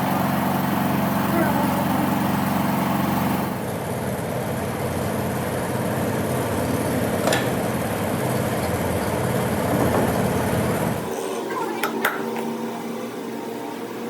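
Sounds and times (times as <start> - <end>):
engine idling: 0.0 - 11.1.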